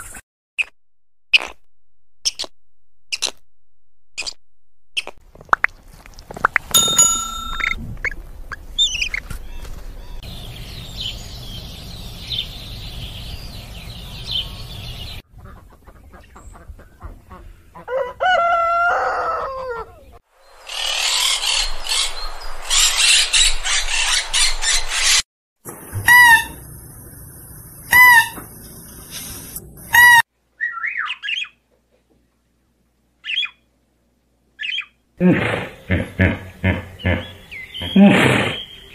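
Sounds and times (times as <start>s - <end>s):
high chirping animal calls: 36.6s - 38.9s.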